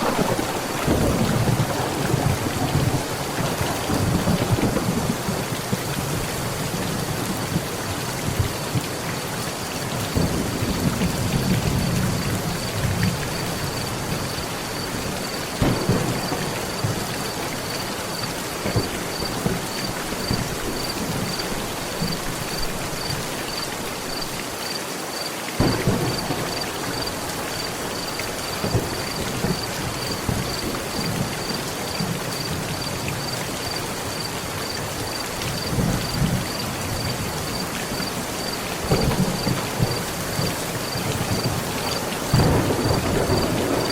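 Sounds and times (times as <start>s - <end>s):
thunder rolling: 0.0s - 8.9s, 10.2s - 23.2s, 25.6s - 33.2s, 38.8s - 43.9s
heavy rain on a metal roof: 0.0s - 43.9s.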